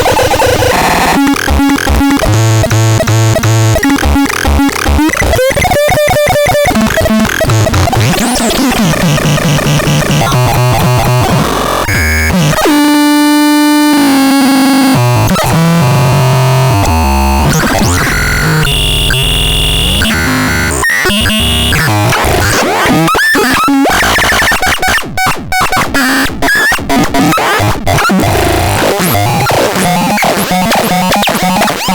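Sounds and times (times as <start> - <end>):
synthesizer tones: 0.0 - 22.6.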